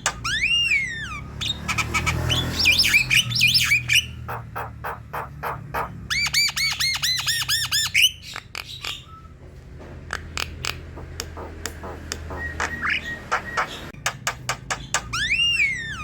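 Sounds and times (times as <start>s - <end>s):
bird clicking chatter: 10.1s - 12.8s.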